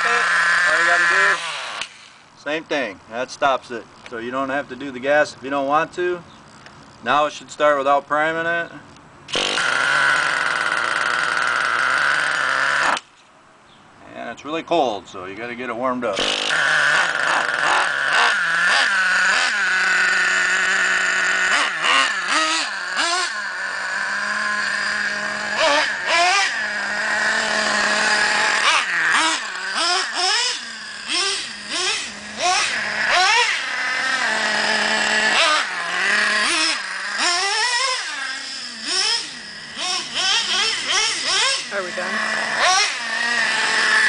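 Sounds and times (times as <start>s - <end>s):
small nitro engine idling: 0.0s - 7.3s, 8.9s - 13.1s, 16.1s - 44.0s
engine throttle blips: 16.2s - 44.0s.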